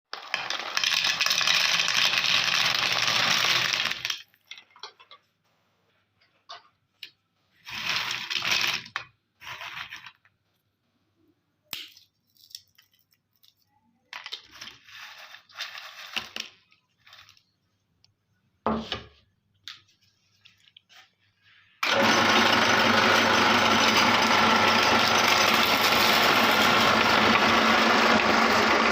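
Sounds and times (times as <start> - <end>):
peanuts rattling and clicking: 0.1 - 5.2
meat grinder motor running: 0.2 - 4.0, 21.8 - 28.9.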